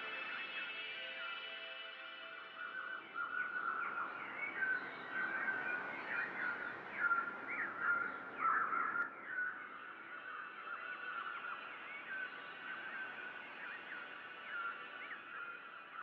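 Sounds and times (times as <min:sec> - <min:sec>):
birds chirping and calling: 0:02.8 - 0:09.5.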